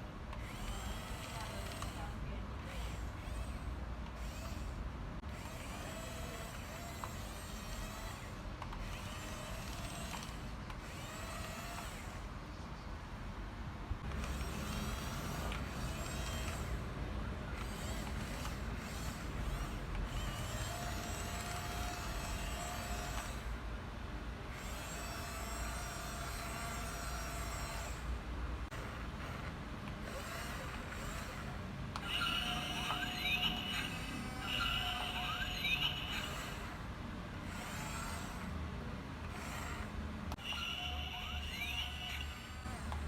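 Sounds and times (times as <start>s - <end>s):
toy bulldozer motors whining: 0.3s - 12.3s, 14.0s - 23.6s, 24.5s - 38.6s, 39.2s - 43.0s
high-pitched sound: 32.1s - 36.4s.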